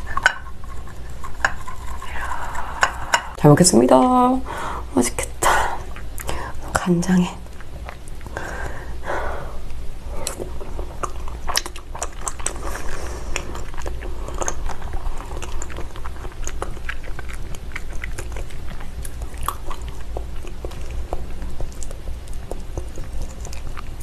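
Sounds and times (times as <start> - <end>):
low steady hum: 0.0 - 24.0
mouth clicks and smacks: 9.6 - 24.0
chewing raw fish: 9.7 - 24.0.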